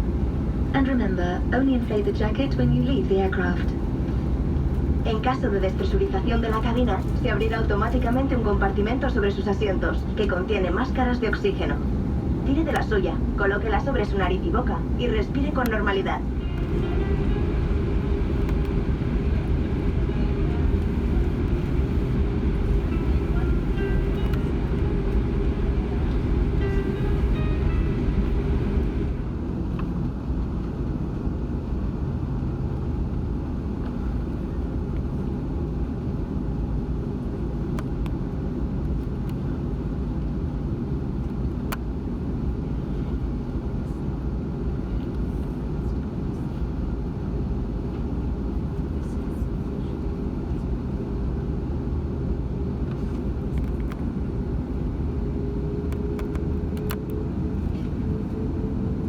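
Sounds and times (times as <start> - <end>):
airplane cabin rumble: 0.0 - 59.0
steady tone: 12.5 - 29.6.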